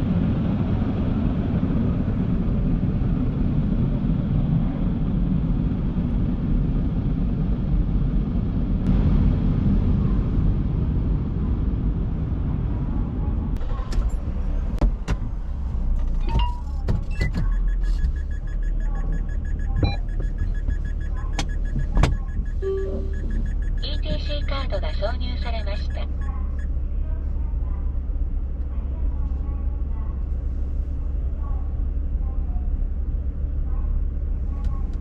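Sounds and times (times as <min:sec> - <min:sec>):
car wash rumbling and rushing: 0:00.0 - 0:35.0
sharp clicks and knocks: 0:15.9 - 0:23.8.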